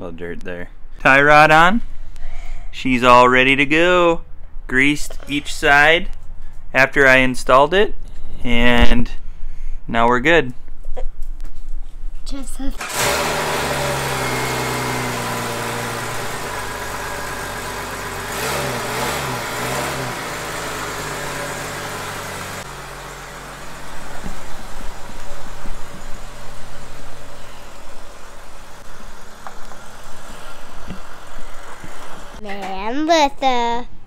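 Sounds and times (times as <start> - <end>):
car driving slowly: 12.8 - 32.4
car engine idling and revving: 12.8 - 32.4.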